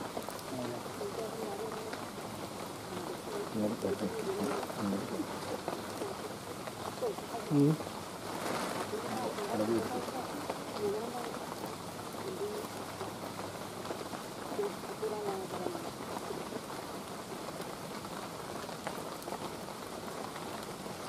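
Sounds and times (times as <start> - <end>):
rain falling on leaves: 0.0 - 21.0
faint voices: 0.4 - 17.0.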